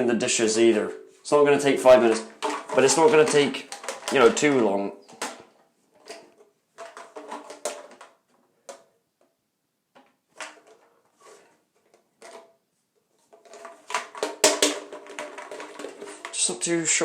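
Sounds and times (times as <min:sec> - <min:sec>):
pipe pieces knocking and clattering: 0:02.0 - 0:08.9, 0:09.9 - 0:12.5, 0:13.3 - 0:16.5.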